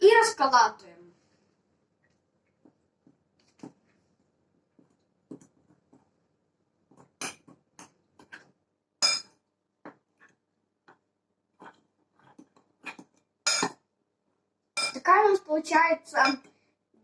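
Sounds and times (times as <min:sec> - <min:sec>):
cutlery clinking on a plate: 0:07.2 - 0:07.5, 0:09.0 - 0:09.3, 0:12.9 - 0:13.8, 0:14.8 - 0:15.0
cutlery scraping a plate: 0:07.2 - 0:07.5, 0:09.0 - 0:09.3, 0:11.6 - 0:13.8.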